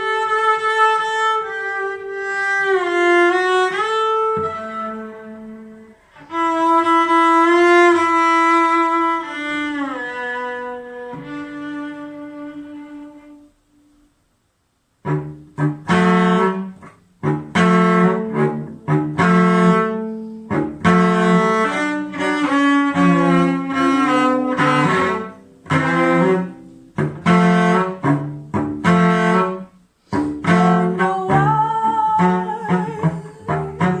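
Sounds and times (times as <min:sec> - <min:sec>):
sliding held melody notes: 0:15.0 - 0:34.0.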